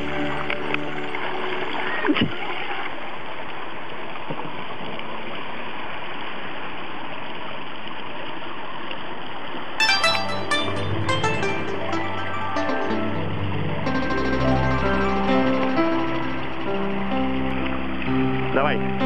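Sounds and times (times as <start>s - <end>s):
music: 0.0s - 2.5s, 9.8s - 19.0s.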